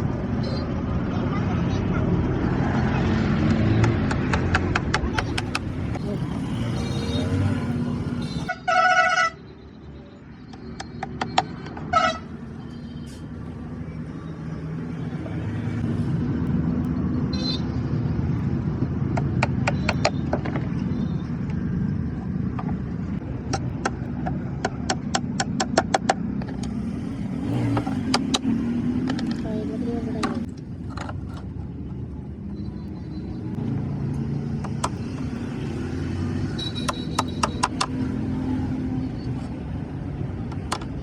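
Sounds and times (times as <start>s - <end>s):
horn honking: 8.1s - 9.4s, 11.9s - 12.4s.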